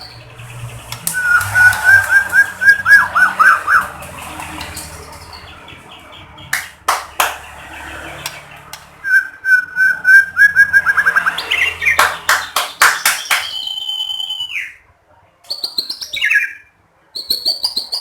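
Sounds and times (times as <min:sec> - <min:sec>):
sharp clicks: 0:00.8 - 0:02.5, 0:08.2 - 0:09.0
bird whistling into fast trills: 0:01.0 - 0:03.9, 0:09.0 - 0:14.8.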